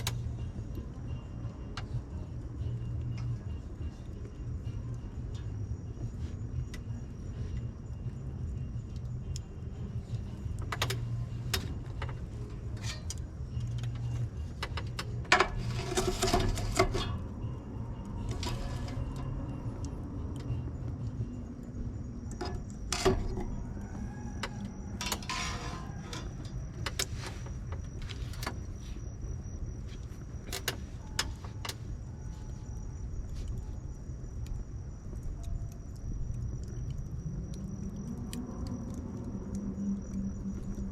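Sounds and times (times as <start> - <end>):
low fire rumble: 0.0 - 40.9
bonfire crackling and popping: 25.8 - 40.9.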